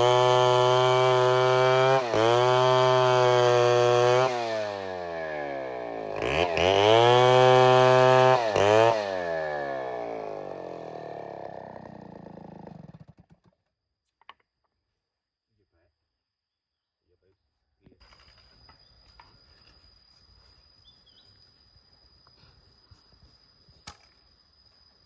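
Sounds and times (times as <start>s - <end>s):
chainsaw engine revving: 0.0s - 13.3s.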